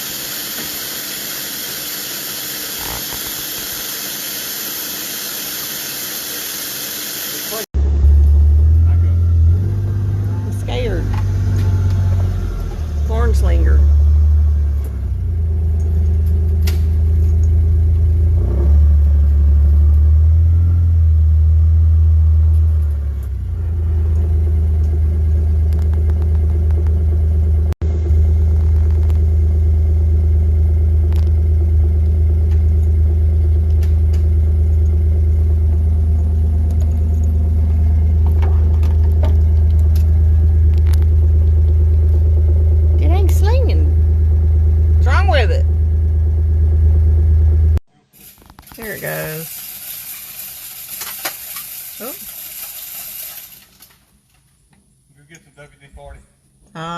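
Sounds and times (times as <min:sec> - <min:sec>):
vehicle engine humming: 0:07.6 - 0:47.8.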